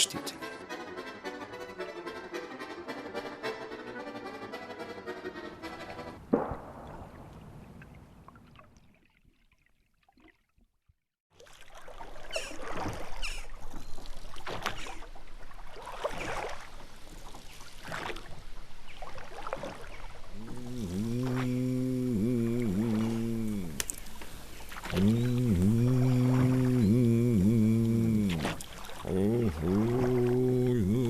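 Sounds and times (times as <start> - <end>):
water splashing in strokes: 11.4 - 31.0
low voice humming: 20.3 - 24.2, 24.8 - 31.0.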